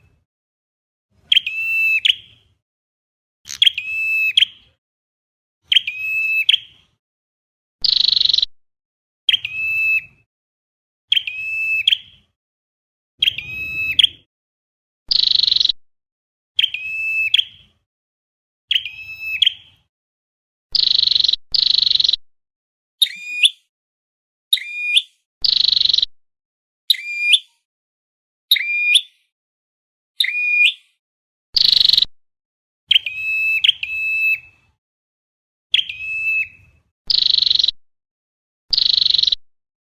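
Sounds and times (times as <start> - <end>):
short sharp bird calls: 3.5 - 4.8, 13.2 - 14.3.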